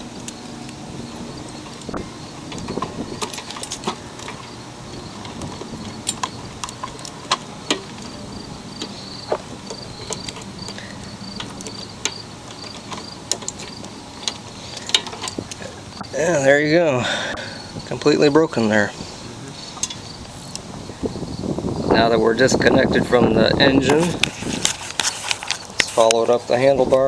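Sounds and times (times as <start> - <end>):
insects chirping: 0.0 - 27.0
tools clicking on metal: 1.5 - 16.1, 19.7 - 20.6.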